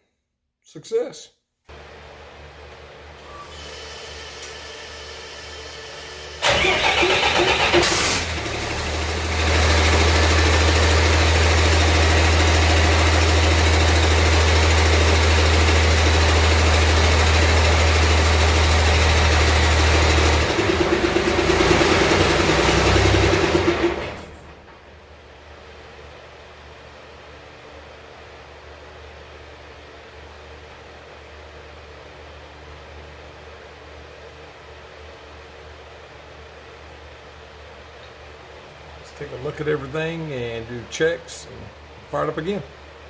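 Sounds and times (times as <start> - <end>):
starter motor cranking: 6.0 - 24.7
diesel engine idling: 6.2 - 25.4.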